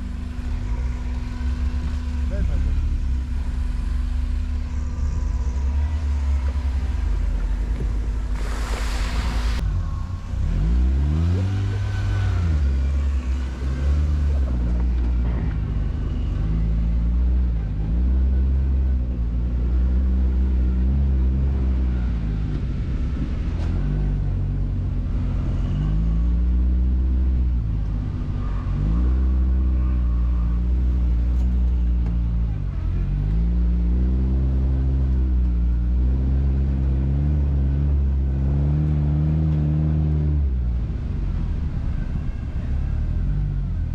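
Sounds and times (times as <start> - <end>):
quad bike engine revving: 10.4 - 18.9.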